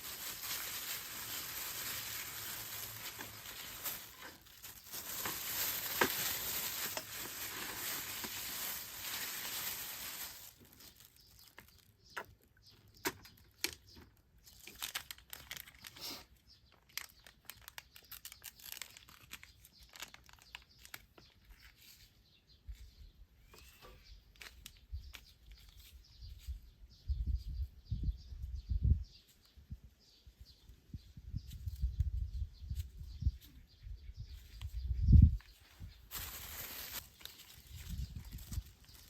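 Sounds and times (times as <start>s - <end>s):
rustling and clicking of handling: 0.0s - 16.0s, 24.3s - 26.6s, 35.4s - 39.0s
faint bird chirp: 15.8s - 39.0s.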